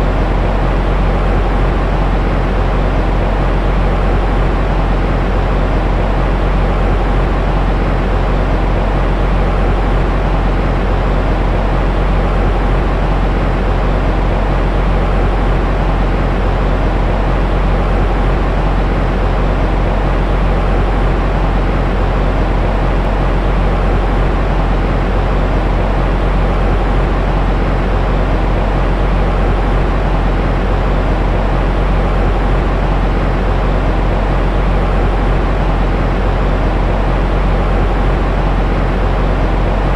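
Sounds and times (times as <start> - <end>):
deep rushing white noise: 0.0 - 39.9
faint steady hum: 0.0 - 39.9.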